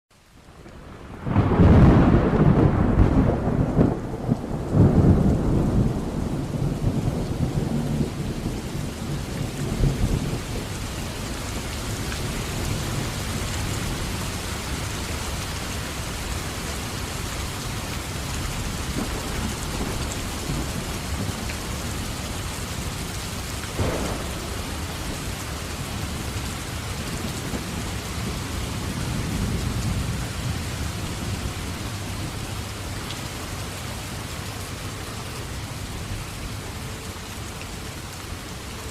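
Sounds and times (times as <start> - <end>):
steady rain: 0.1 - 38.9
thunder rumbling: 0.7 - 17.2, 18.0 - 34.9
sharp thunder crack: 1.2 - 7.2, 23.7 - 26.8.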